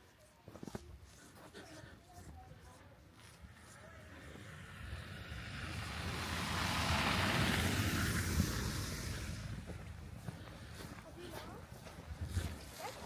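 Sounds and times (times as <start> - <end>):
vehicle driving past: 3.8 - 10.8.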